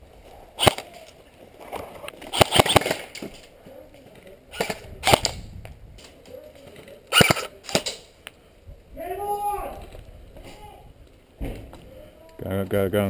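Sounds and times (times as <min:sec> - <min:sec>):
airsoft gun shots: 0:00.6 - 0:00.9, 0:02.3 - 0:03.2, 0:04.5 - 0:05.4, 0:07.1 - 0:08.0.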